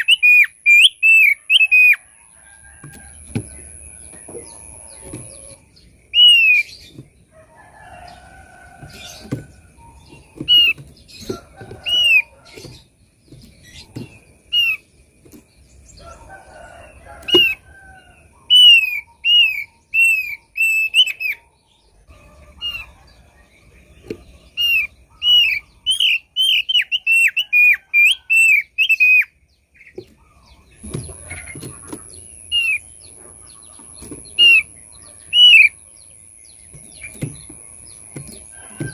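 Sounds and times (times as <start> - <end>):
bird whistled calls: 0.0 - 2.0, 6.1 - 6.8.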